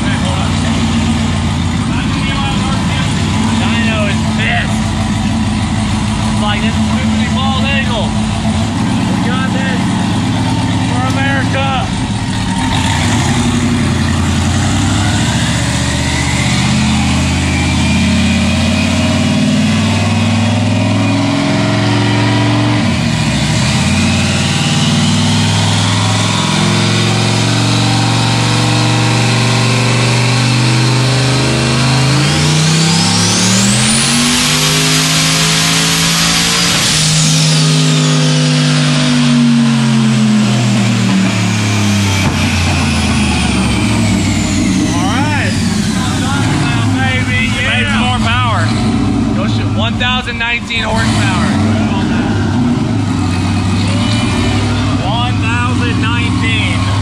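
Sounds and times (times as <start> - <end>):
car engine revving on dyno: 0.0 - 57.0
high turbo whine: 0.0 - 57.0.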